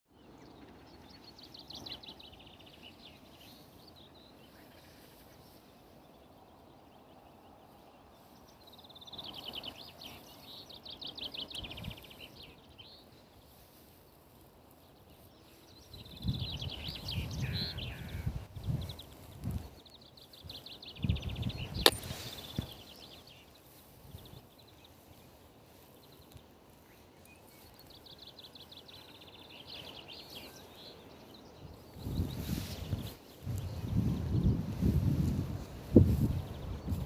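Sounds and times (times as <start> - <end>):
songbird trilling: 15.4 - 23.5.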